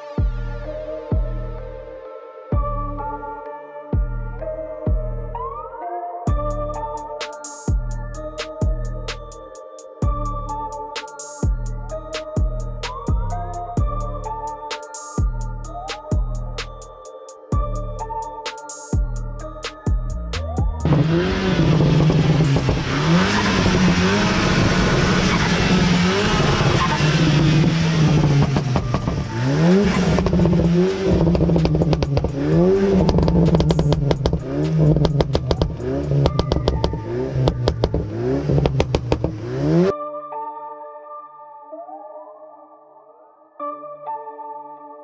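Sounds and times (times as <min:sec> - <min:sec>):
car engine revving: 0:20.8 - 0:39.9
sharp exhaust cracks: 0:20.9 - 0:39.5.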